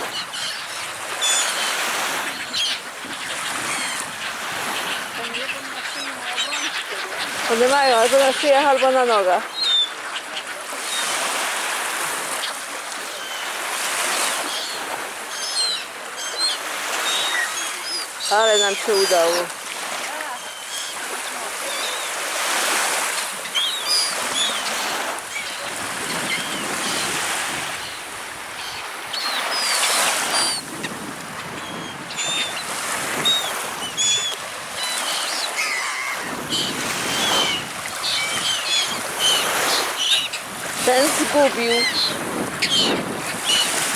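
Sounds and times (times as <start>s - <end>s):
birds calling: 0.0s - 43.9s
waves washing: 0.0s - 43.9s
sea surf rushing: 16.4s - 43.9s
high bird chirps: 23.4s - 24.7s, 33.2s - 40.4s.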